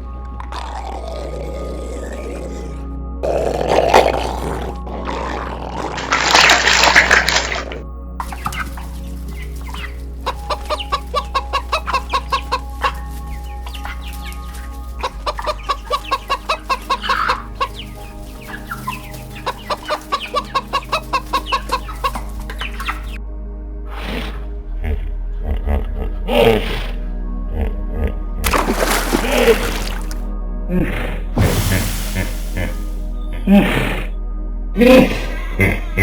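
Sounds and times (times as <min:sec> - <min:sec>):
chickens clucking: 0:08.2 - 0:23.2, 0:28.5 - 0:30.2, 0:31.6 - 0:33.0.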